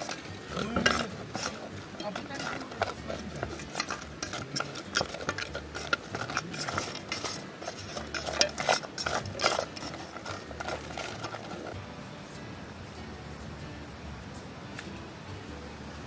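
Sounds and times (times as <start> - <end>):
metal utensils scraping cookware: 0.0 - 11.8.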